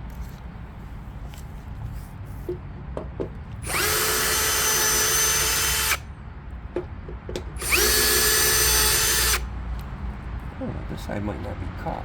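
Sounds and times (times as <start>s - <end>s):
power drill spinning: 3.6s - 6.0s, 7.6s - 9.5s.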